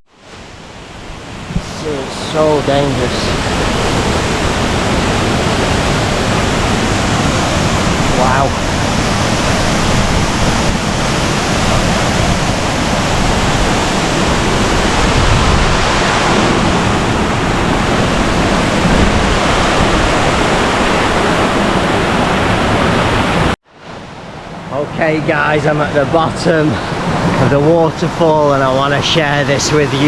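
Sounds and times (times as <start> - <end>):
waterfall rushing: 0.9 - 23.6.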